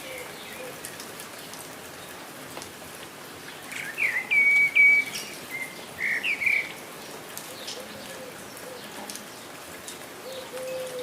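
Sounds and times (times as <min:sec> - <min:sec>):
bird singing whistled notes: 0:03.8 - 0:06.7.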